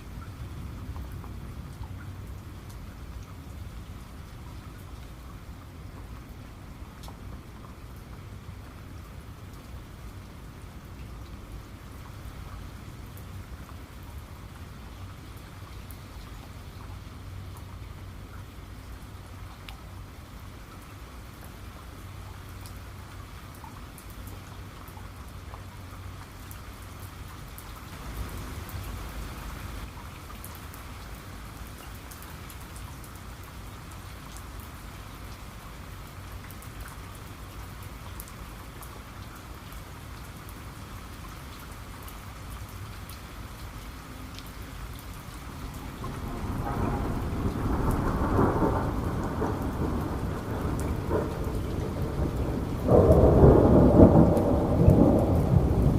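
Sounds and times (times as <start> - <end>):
rain falling: 0.0 - 55.9
thunder rumbling: 45.7 - 55.9.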